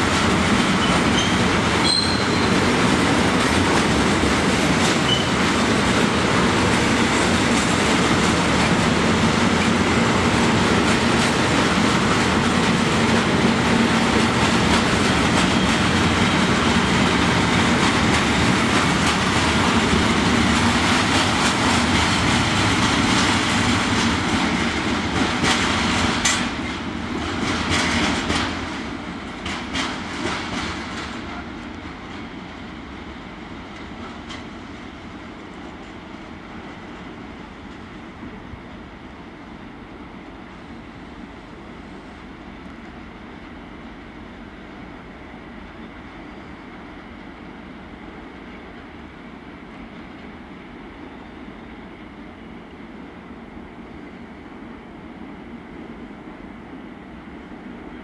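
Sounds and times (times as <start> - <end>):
wheels clicking over rail joints: 0.0 - 32.3
freight train rolling past: 0.0 - 58.0
faint wheel squeal: 0.8 - 2.5, 5.1 - 5.4.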